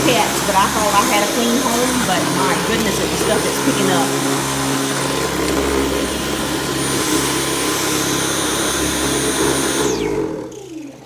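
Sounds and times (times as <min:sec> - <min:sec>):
cordless vacuum whining: 0:00.0 - 0:11.0.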